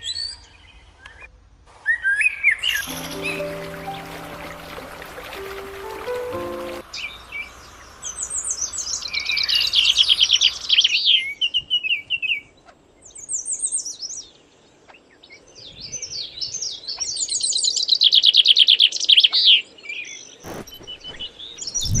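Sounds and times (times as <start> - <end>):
songbird chirping: 2.7 - 11.4.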